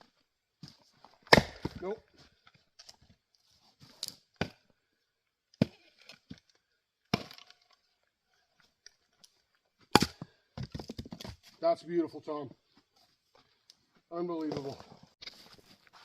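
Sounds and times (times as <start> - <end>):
axe chopping wood: 1.2 - 2.0, 4.4 - 4.6, 5.6 - 5.9, 7.1 - 7.6, 9.9 - 11.3
wood cracking and splitting: 1.3 - 1.9, 7.1 - 7.8.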